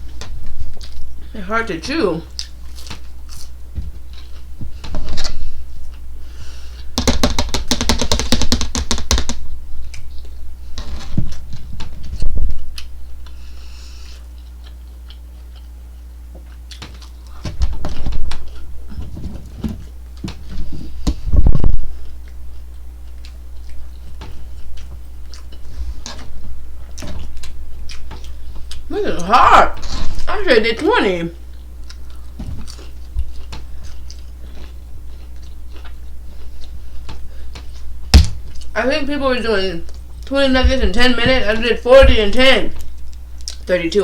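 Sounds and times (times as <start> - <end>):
chewing crunchy food: 0.0 - 1.2, 2.3 - 6.1, 12.6 - 18.7, 21.9 - 28.9, 31.4 - 38.8, 42.8 - 43.7
steady low hum: 0.0 - 44.0.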